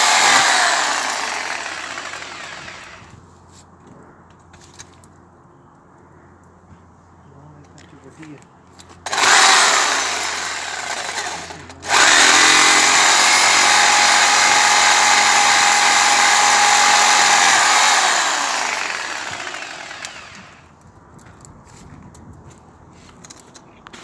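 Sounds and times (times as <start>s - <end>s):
chainsaw cutting a tree: 0.0s - 3.0s, 9.1s - 20.6s.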